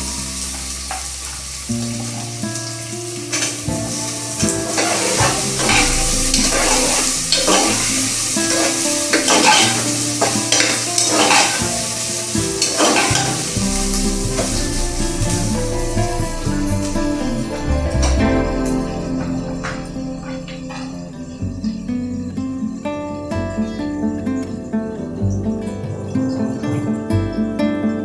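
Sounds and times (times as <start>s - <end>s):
food sizzling in a pan: 0.0s - 25.2s
scraping strokes in a pan: 4.1s - 21.3s.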